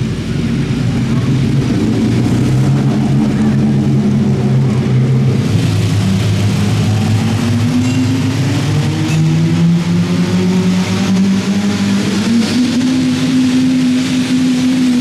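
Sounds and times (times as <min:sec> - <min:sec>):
tractor engine running under load: 0:00.0 - 0:09.0.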